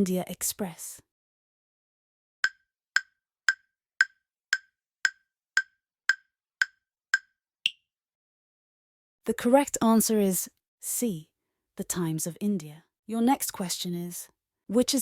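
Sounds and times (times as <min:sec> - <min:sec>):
countdown timer ticks: 0:02.4 - 0:07.8.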